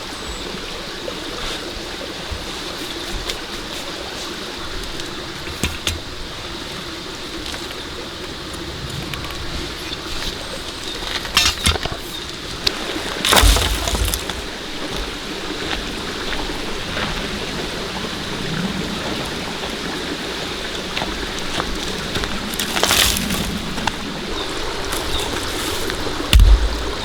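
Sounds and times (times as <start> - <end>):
raindrop hits: 26.3 - 27.0.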